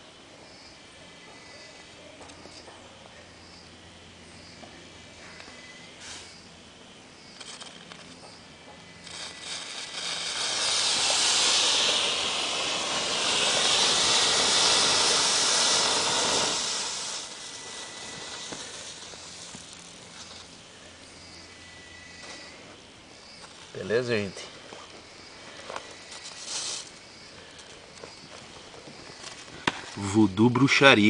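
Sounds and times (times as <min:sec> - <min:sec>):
mixture burning with loud hiss: 0:03.3 - 0:31.0
faint crackles: 0:07.3 - 0:21.1, 0:24.6 - 0:30.2.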